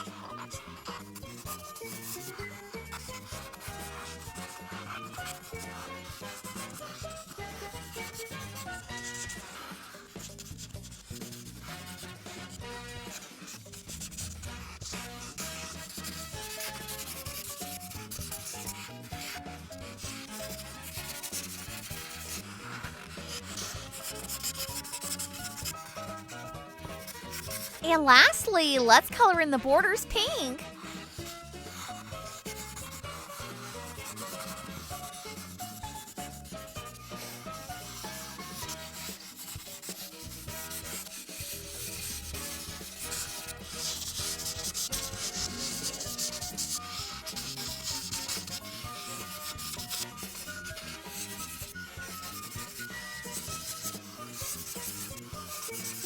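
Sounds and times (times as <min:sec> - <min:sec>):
marker rubbing on paper: 0:00.6 - 0:26.3, 0:30.7 - 0:56.0
background music: 0:27.8 - 0:31.5.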